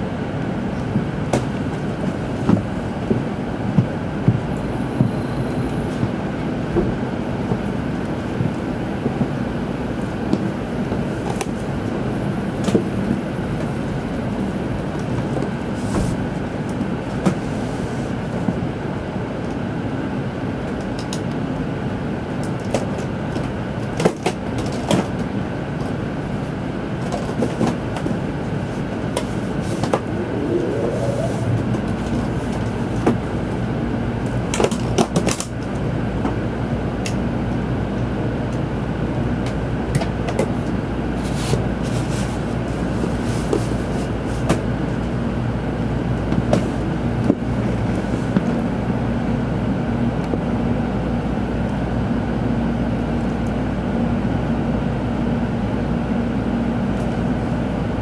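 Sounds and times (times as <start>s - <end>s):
train rumbling: 0.0s - 52.0s
short rising tone: 29.5s - 32.4s.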